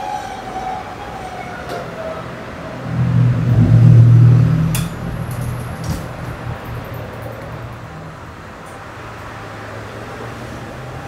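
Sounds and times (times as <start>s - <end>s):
falling train whine: 0.0s - 9.2s
low motor hum: 2.6s - 8.5s.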